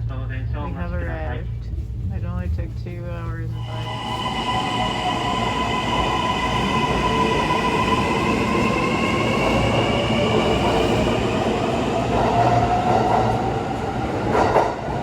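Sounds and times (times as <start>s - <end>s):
electric train slowing: 3.4s - 15.0s.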